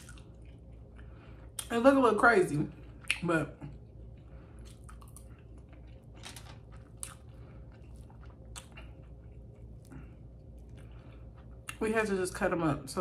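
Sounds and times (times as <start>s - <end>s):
closed-mouth chewing: 4.1s - 6.1s, 6.7s - 11.8s.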